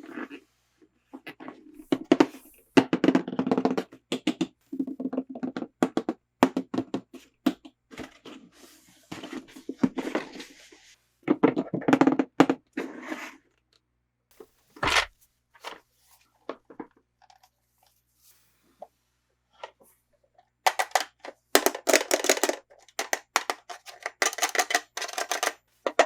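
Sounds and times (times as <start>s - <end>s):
plastic toys clicking and tapping: 20.7s - 26.0s.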